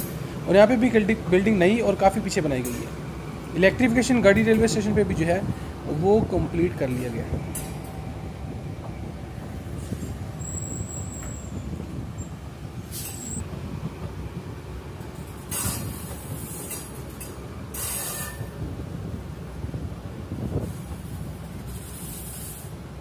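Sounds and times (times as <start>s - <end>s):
train wheels rumbling: 0.0s - 23.0s
short bursts of hiss: 20.6s - 22.8s.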